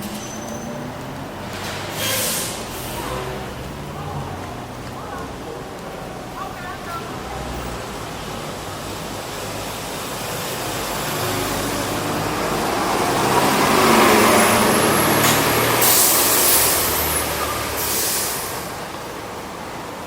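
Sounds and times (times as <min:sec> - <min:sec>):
heavy vehicle engine passing: 0:00.0 - 0:20.0
air brake hisses: 0:01.6 - 0:03.3, 0:15.7 - 0:18.7.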